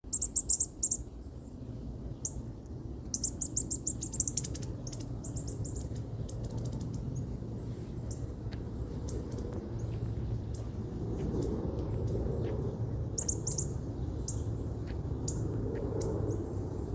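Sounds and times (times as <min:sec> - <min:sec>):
steady low hum: 0:00.0 - 0:16.9
baby bird cheeping: 0:00.1 - 0:01.0, 0:03.1 - 0:06.9.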